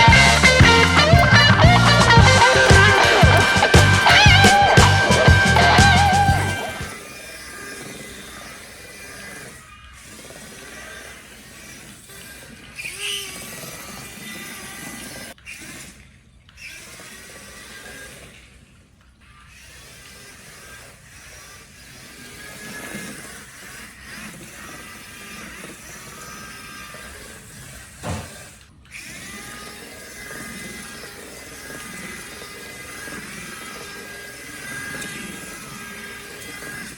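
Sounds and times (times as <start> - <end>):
background music: 0.0 - 6.9
small electric motors whining: 0.0 - 36.9.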